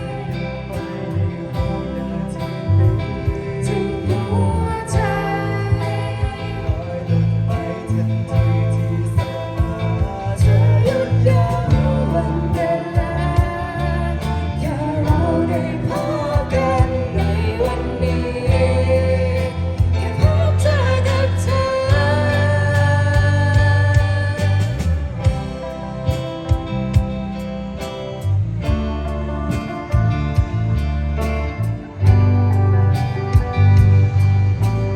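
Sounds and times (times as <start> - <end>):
lead singer singing: 0.0 - 26.6
band playing a song: 0.0 - 34.9.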